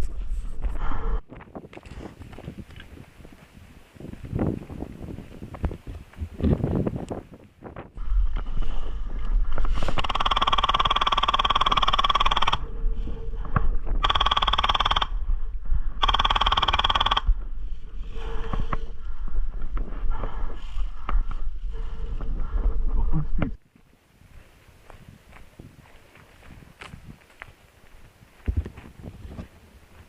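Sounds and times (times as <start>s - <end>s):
wind rumble on microphone: 0.0s - 10.8s, 11.4s - 23.6s, 24.2s - 30.0s
airsoft gun firing bursts: 10.0s - 12.6s, 14.0s - 15.1s, 16.0s - 17.3s.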